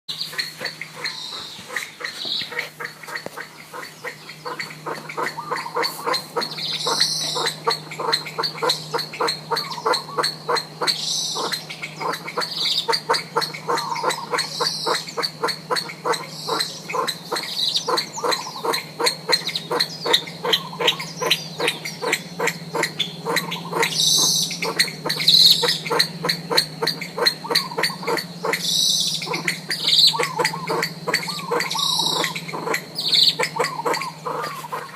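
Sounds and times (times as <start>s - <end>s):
pheasant calling: 0.1s - 34.9s.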